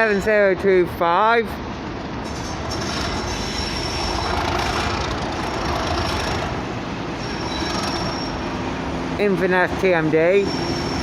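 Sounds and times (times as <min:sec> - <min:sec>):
train wheels rumbling on rail: 0:01.7 - 0:11.0
high wheel squeal: 0:02.2 - 0:08.7, 0:10.3 - 0:11.0.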